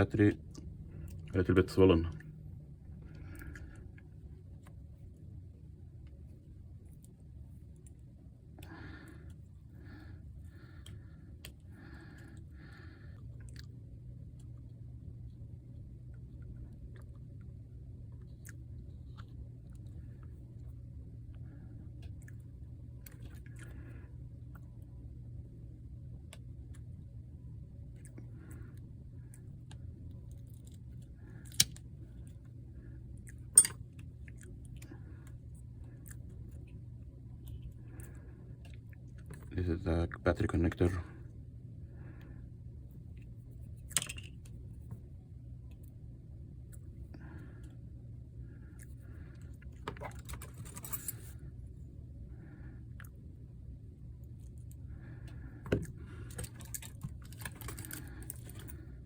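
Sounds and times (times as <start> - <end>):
low hum: 0.0 - 59.0
metallic tool clicks: 33.6 - 33.8.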